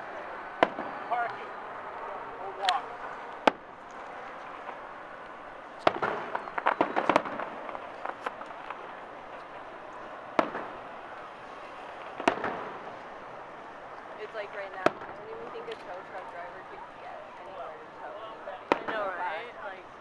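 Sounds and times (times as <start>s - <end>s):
fireworks bangs: 0.0s - 17.0s, 18.3s - 19.5s
crackling pops: 2.6s - 13.2s, 13.9s - 16.4s, 18.6s - 19.2s.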